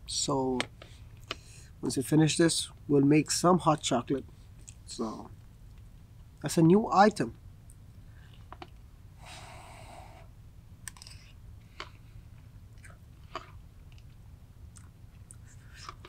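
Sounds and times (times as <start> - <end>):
person chewing: 12.7 - 16.0.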